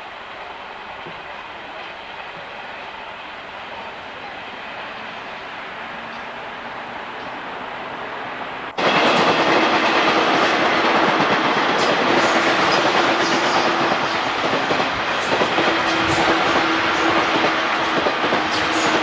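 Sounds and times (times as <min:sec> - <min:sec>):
train wheels clattering: 0:08.7 - 0:19.0.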